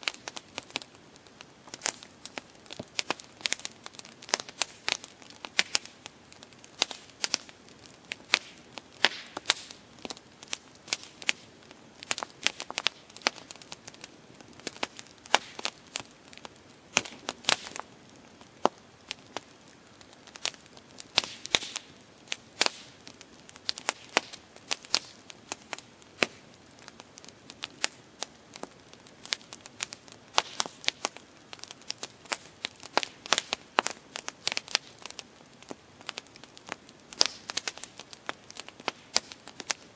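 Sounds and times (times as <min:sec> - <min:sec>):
campfire crackling and popping: 0:00.0 - 0:39.9
soft hiss of burning: 0:00.0 - 0:39.9.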